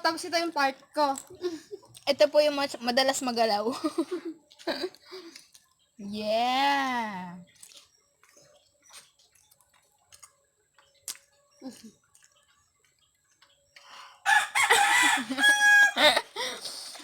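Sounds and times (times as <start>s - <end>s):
rooster crowing loudly: 14.2s - 16.2s.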